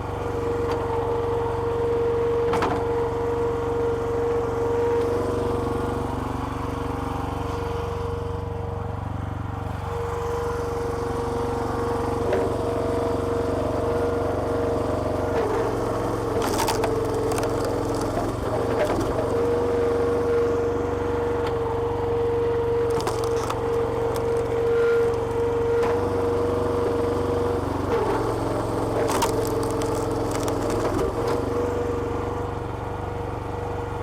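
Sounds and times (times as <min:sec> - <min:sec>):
hydraulic pump whine: 0:00.0 - 0:34.0
small petrol engine running: 0:00.0 - 0:34.0
sharp cracks and knocks: 0:15.4 - 0:19.4, 0:22.9 - 0:27.0, 0:27.9 - 0:31.5.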